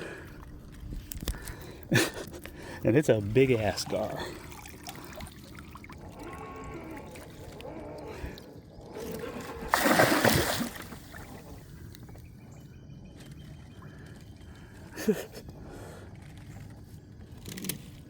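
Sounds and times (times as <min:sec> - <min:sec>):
water splashing and trickling: 0:02.6 - 0:12.0
loud fish splash: 0:09.5 - 0:11.6.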